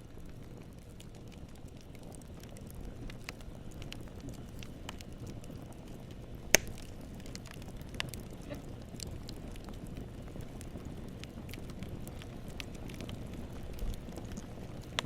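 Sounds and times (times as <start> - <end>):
campfire flame rushing: 0.0 - 15.0
wood crackling: 0.0 - 15.0
loud pop from fire: 6.4 - 9.1.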